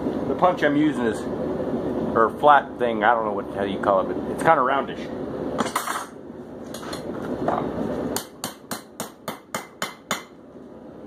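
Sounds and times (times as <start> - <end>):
hammer striking punch on anvil: 8.2 - 10.4.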